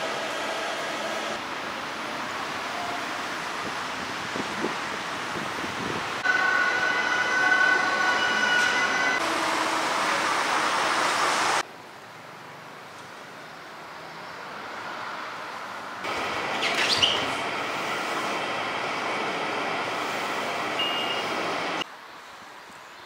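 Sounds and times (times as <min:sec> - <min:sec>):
traffic noise: 0:00.0 - 0:23.0
high-pitched squeal: 0:06.2 - 0:11.0.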